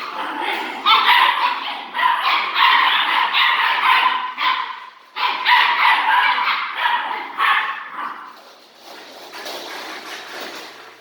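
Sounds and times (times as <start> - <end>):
puppies yipping and barking: 0.0 - 7.9.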